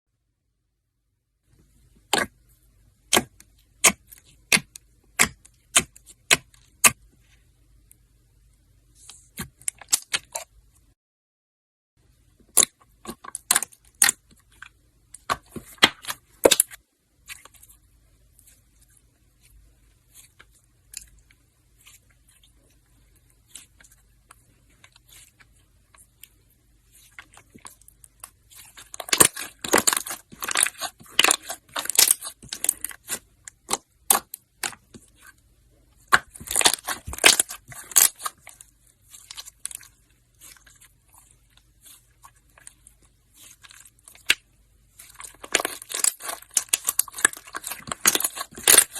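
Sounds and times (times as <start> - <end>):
slime crackling and popping: 12.5 - 14.6, 26.9 - 34.8, 36.0 - 48.9.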